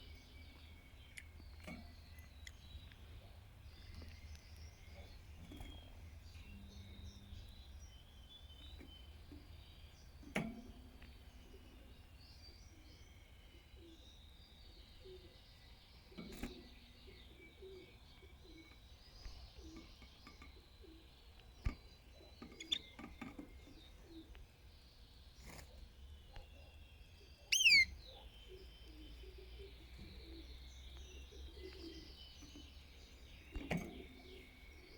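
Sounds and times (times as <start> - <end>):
canary chirping: 22.0 - 24.3, 26.4 - 34.9.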